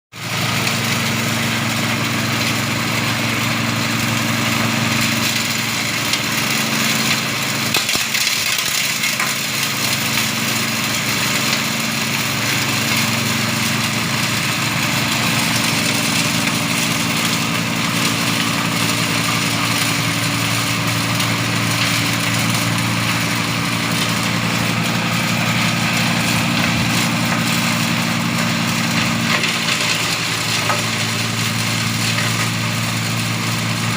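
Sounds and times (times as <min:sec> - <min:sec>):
chopper machine humming: 0:00.2 - 0:33.9.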